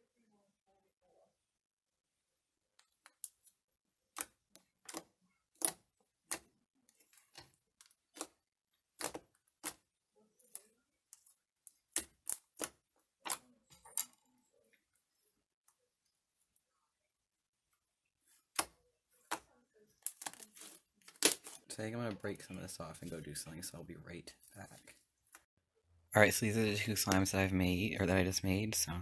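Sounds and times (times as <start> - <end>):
slime squelching by hand: 2.9 - 16.7.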